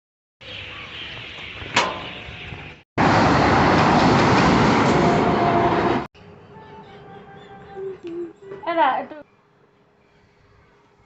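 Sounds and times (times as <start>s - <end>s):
train rumbling on rails: 3.0s - 6.1s.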